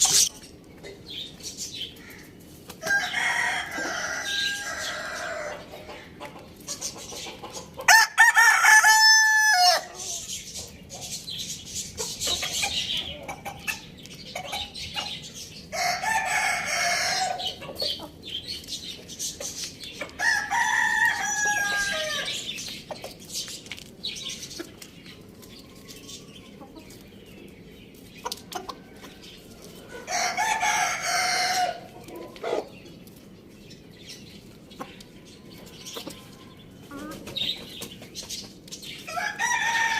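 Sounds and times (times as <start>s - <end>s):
chickens clucking: 0.0s - 39.9s
rooster crowing: 2.8s - 5.6s, 7.9s - 9.9s, 15.8s - 17.4s, 20.2s - 22.4s, 30.1s - 31.8s, 39.1s - 39.9s.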